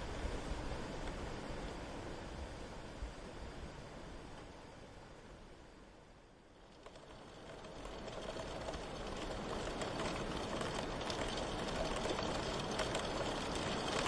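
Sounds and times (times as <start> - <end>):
steady rain pattering: 6.1 - 14.0.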